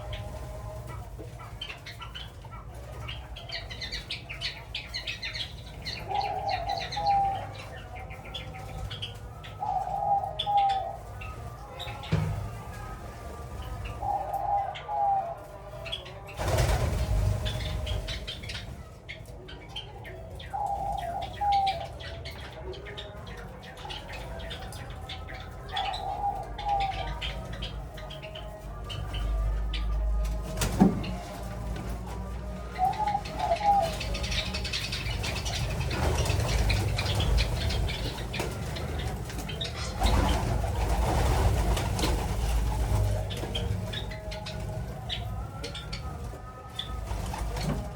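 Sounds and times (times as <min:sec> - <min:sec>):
doves cooing: 0:00.0 - 0:47.9
sparrows chirping: 0:00.0 - 0:47.9
wings flapping: 0:16.4 - 0:18.9, 0:32.8 - 0:47.9.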